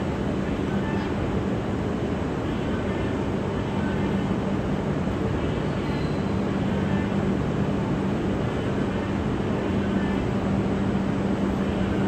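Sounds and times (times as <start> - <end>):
train humming and rumbling: 0.0 - 12.0.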